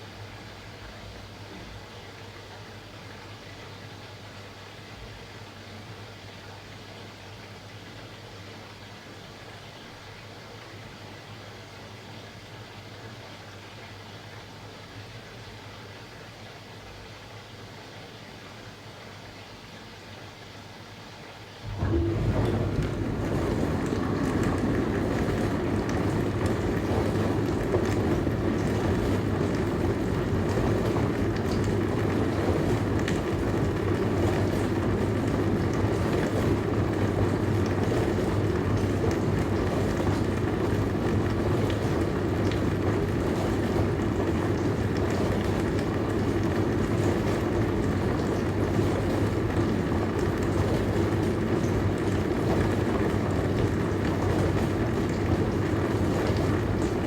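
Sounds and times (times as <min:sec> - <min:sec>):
dishwasher hum: 0:21.6 - 0:57.0
water spraying inside dishwasher: 0:21.6 - 0:57.0.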